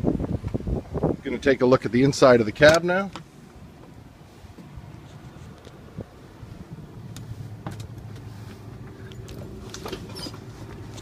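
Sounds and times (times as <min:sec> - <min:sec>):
steady low hum: 0:00.2 - 0:11.0
truck door opening clicks and rattles: 0:07.1 - 0:11.0.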